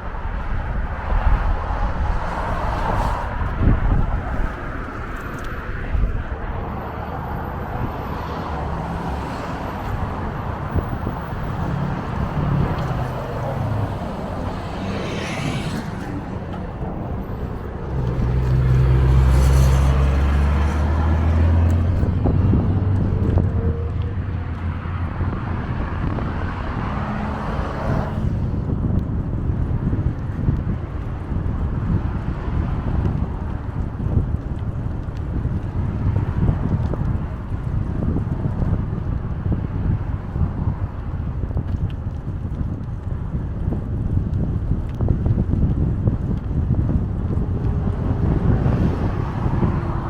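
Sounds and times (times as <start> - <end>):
road traffic: 0.0 - 50.0
wind noise: 0.0 - 50.0
motor vehicle passing close: 0.7 - 28.5, 46.2 - 50.0.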